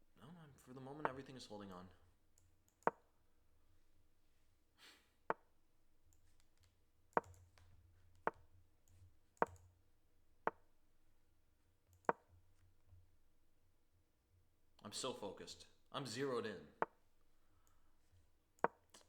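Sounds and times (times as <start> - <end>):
sharp clicks of chess moves: 18.6 - 19.0.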